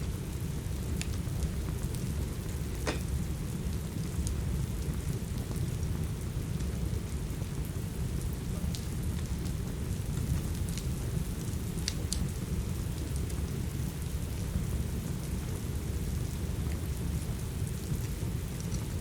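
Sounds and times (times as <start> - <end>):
steady rain: 0.0 - 19.0
wood fire popping: 0.4 - 4.4.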